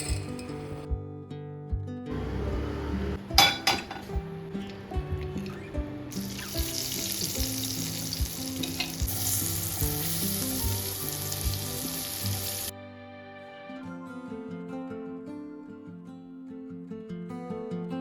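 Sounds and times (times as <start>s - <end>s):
background music: 0.0s - 17.0s
food sizzling in a pan: 5.4s - 12.7s.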